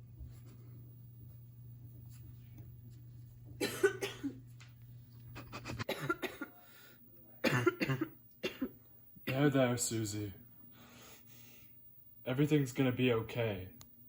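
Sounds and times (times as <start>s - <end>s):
steady low hum: 0.0s - 14.0s
person coughing: 3.6s - 4.4s, 5.4s - 6.6s, 7.4s - 9.4s.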